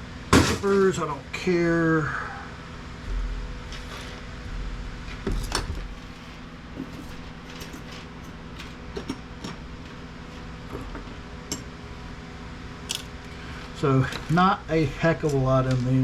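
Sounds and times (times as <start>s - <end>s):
scrap parts clattering: 5.3s - 10.0s.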